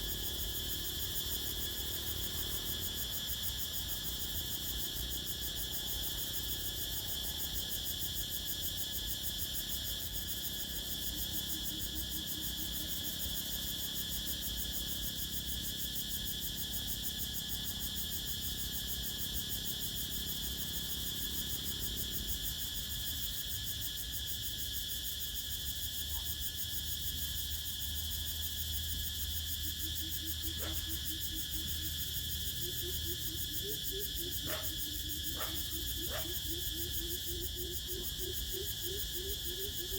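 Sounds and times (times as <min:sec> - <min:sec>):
crickets trilling: 0:00.0 - 0:39.9
frog croaking: 0:34.4 - 0:34.7.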